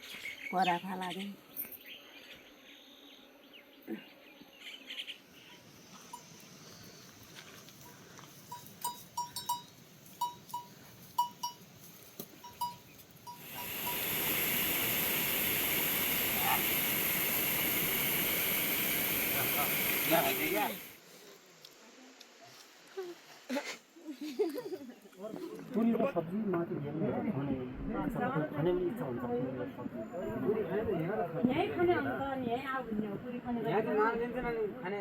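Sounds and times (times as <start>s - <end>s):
animal bell clinking: 8.4s - 11.8s, 12.4s - 13.6s
steady loud hiss: 13.3s - 22.2s.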